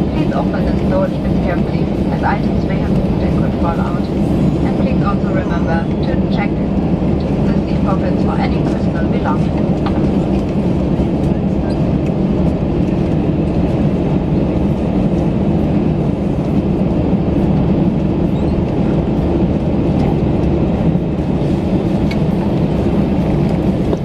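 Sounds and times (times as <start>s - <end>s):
aircraft cabin rumble: 0.0s - 24.0s.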